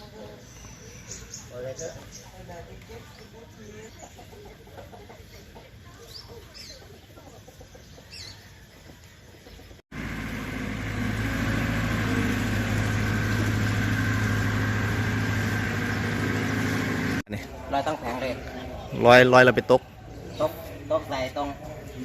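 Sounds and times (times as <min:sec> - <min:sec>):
birds chirping: 0:00.0 - 0:09.8, 0:12.0 - 0:22.0
engine humming: 0:09.9 - 0:17.4.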